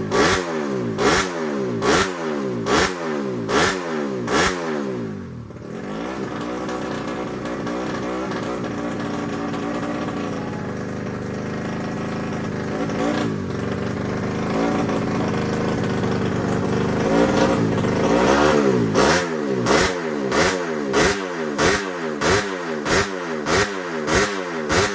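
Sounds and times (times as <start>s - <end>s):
motorcycle engine revving: 0.0s - 24.9s.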